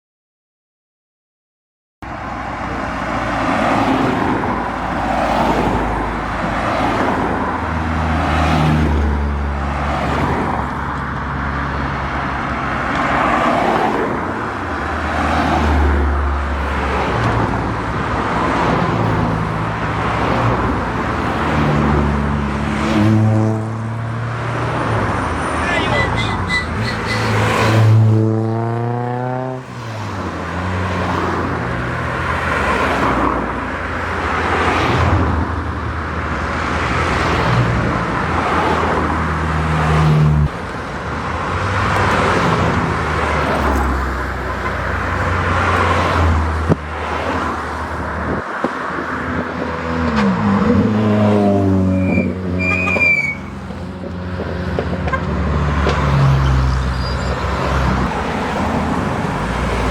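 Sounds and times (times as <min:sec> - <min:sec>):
car engines rumbling: 0:02.0 - 0:59.9
car engine revving hard: 0:27.4 - 0:29.7.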